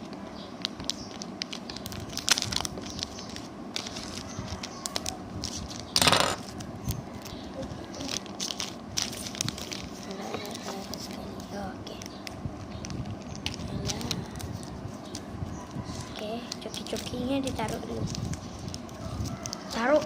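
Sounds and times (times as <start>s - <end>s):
plastic packaging crinkling: 0.0s - 20.0s
packaging ripping: 0.6s - 15.2s.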